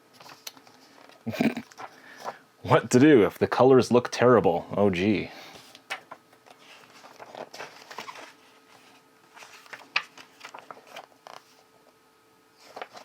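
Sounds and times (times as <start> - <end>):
paper rustling: 0.1 - 2.4, 5.5 - 11.6, 12.6 - 13.0.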